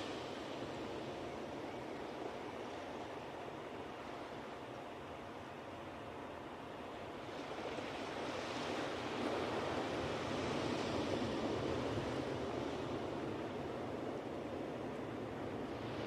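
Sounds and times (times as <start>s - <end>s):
ocean surf washing onto beach: 7.2s - 16.0s.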